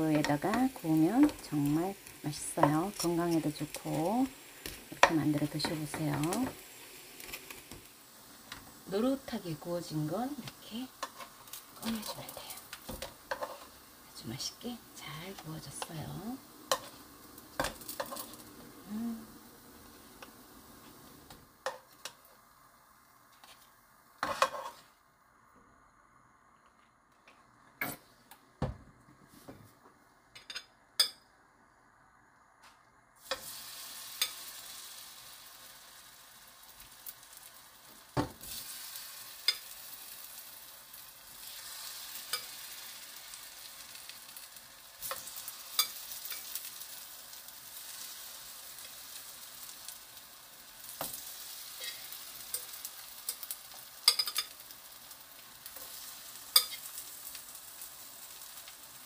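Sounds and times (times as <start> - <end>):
zucchini frying in oil: 0.0 - 25.0, 33.2 - 59.0
metal tongs clicking on pan: 45.0 - 46.6, 51.8 - 54.7, 56.5 - 57.0.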